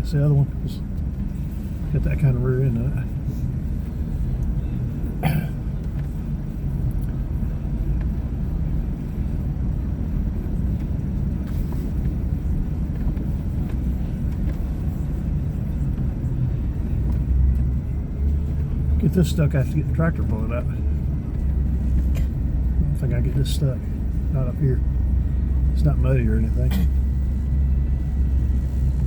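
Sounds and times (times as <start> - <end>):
vehicle engine rumble: 0.0 - 29.0.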